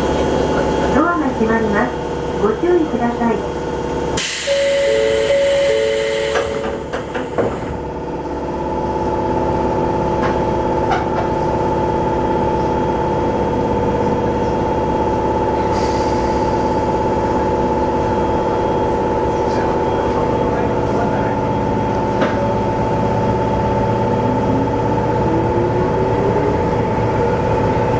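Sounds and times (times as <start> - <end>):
rail noise: 0.0 - 27.9
train motor hum: 0.0 - 27.9
air hissing: 4.2 - 7.6
two-tone door chime: 4.4 - 7.0.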